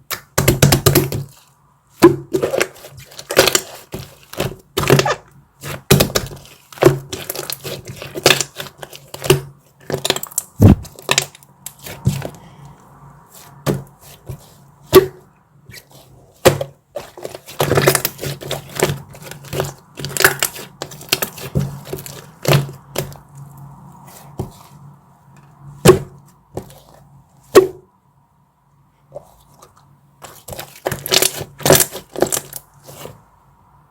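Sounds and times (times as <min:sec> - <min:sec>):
chocolate snapping and crunching: 0:05.9 - 0:12.2.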